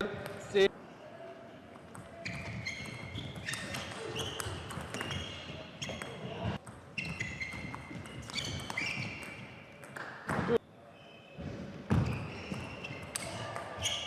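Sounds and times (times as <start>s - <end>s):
table tennis ball bouncing: 1.8s - 10.6s
shoes squeaking on floor: 2.0s - 14.0s.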